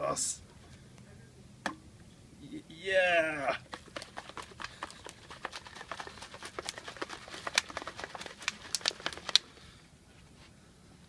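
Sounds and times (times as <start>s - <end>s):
plastic shaker bottle clicking: 3.6s - 9.5s.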